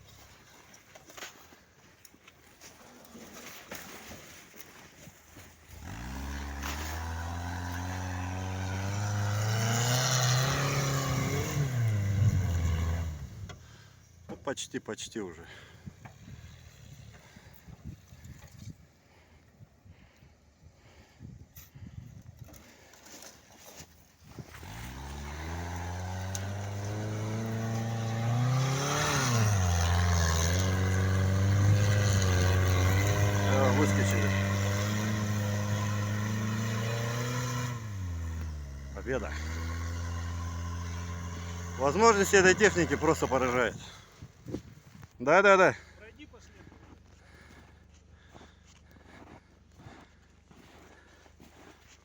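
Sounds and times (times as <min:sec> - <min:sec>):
vehicle engine working under load: 0:05.7 - 0:14.2, 0:24.4 - 0:44.4.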